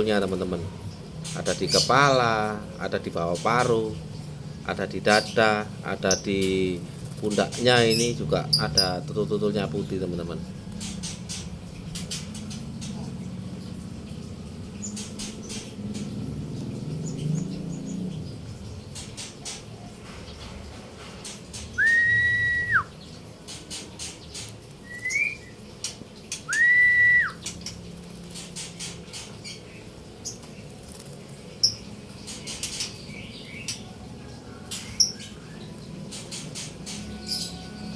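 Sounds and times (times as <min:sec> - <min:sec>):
high bird chirps: 0:21.7 - 0:23.2, 0:24.3 - 0:25.7, 0:26.3 - 0:27.8
long level whistles: 0:21.8 - 0:22.9, 0:26.5 - 0:27.4.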